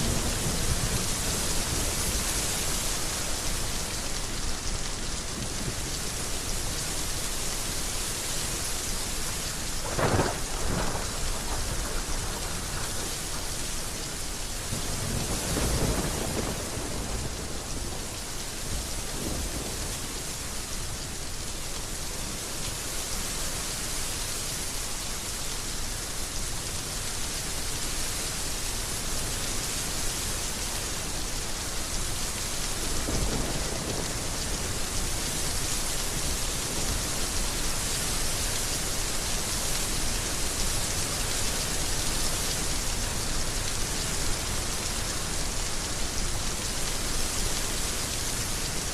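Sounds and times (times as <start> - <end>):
heavy rain: 0.0 - 48.9
thunder clap and rumbles: 9.8 - 13.6, 14.8 - 18.0, 33.0 - 35.1.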